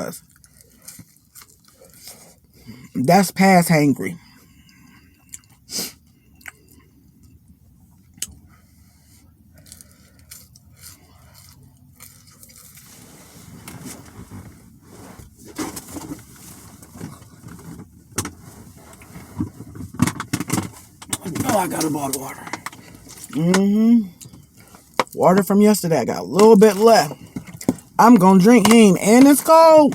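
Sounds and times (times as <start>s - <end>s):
person chewing food: 0.1s - 2.9s, 4.2s - 13.2s, 22.1s - 25.2s
food handling noise: 0.2s - 2.8s, 6.4s - 25.5s.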